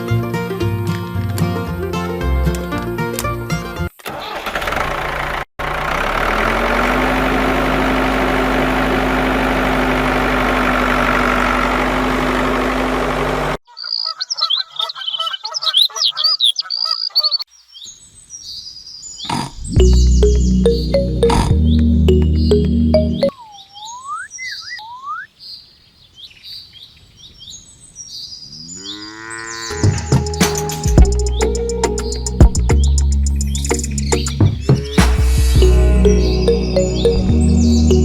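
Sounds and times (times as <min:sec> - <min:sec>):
high chirping bird calls: 0:13.8 - 0:18.6
background music: 0:19.8 - 0:23.3, 0:29.8 - 0:38.0.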